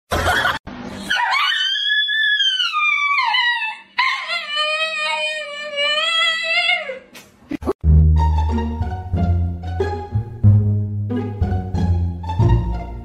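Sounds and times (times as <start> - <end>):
dog howling: 1.1 - 7.1.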